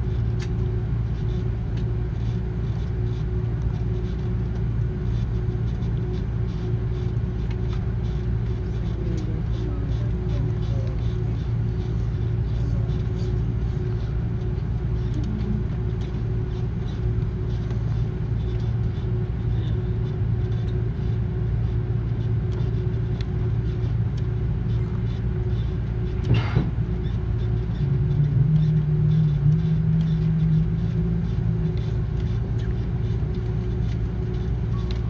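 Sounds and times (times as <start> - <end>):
aircraft cabin rumble: 0.0 - 35.0
engine hum: 0.0 - 35.0
brief knock: 26.3 - 26.8.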